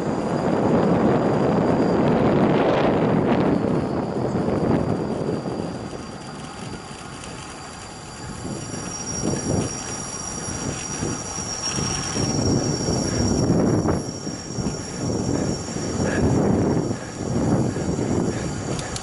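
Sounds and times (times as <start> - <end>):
thin high-pitched whine: 0.0 - 19.0
wind buffeting microphone: 0.0 - 19.0.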